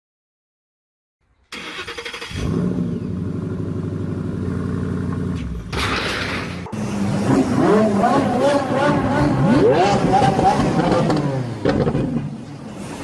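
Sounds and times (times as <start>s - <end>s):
car engine starting and idling: 1.2s - 12.9s
sports car engine revving: 2.2s - 5.4s, 6.6s - 12.0s.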